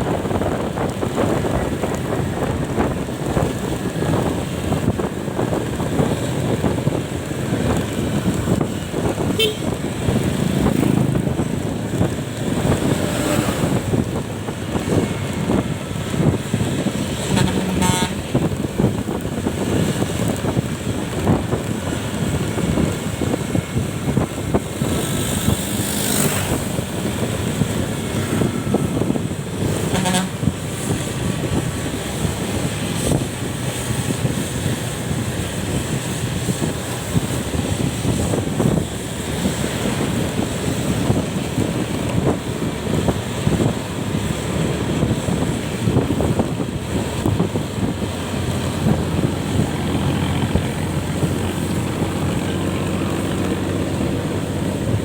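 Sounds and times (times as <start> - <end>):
road and wind noise: 0.0 - 55.0
horn toots: 9.2 - 9.8, 17.1 - 18.5, 29.6 - 30.6.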